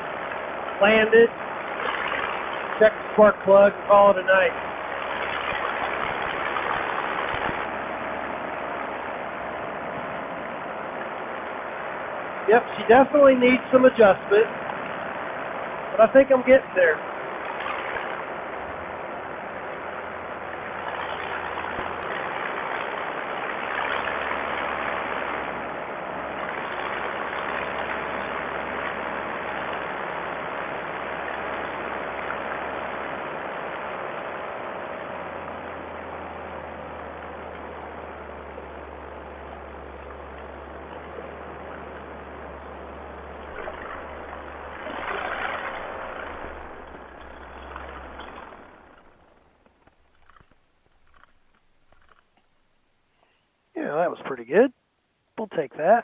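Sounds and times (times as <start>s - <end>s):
paramotor engine drone: 0.0s - 54.4s.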